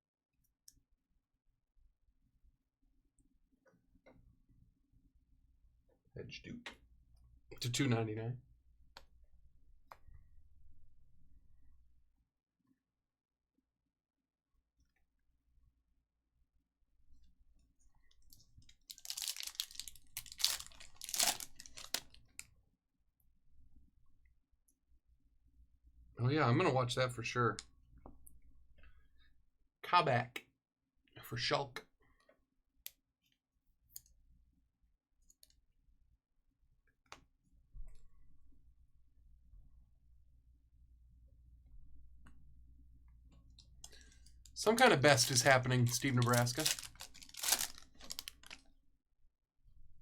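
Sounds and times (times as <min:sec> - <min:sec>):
wrappers tearing and crinkling: 0:18.6 - 0:22.2, 0:44.8 - 0:48.6.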